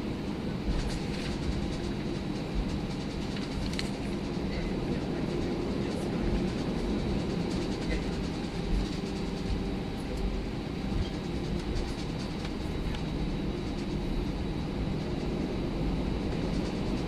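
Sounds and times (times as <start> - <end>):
airplane cabin rumble: 0.0 - 17.0
faint clicks and rattles: 0.7 - 10.3.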